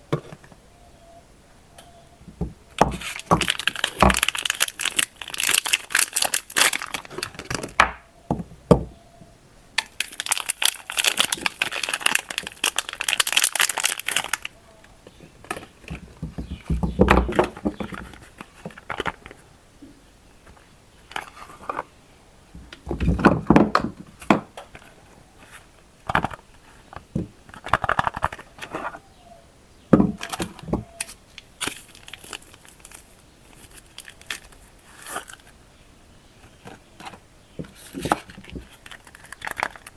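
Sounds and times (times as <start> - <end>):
wrappers crinkling and tearing: 3.0 - 7.7, 9.8 - 14.6, 31.0 - 35.5, 37.8 - 39.9.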